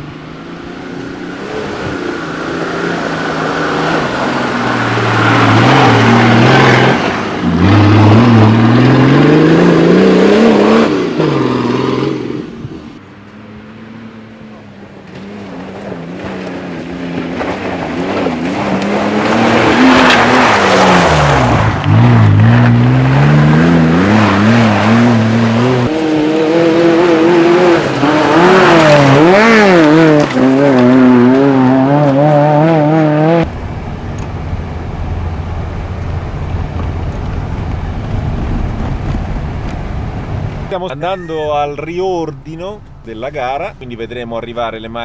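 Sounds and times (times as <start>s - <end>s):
off-road vehicle engine revving: 0.0s - 33.6s.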